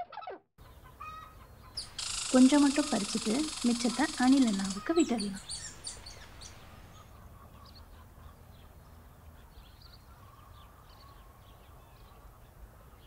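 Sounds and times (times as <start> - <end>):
small birds chirping: 0.6 - 13.0
low outdoor rumble: 1.8 - 8.0.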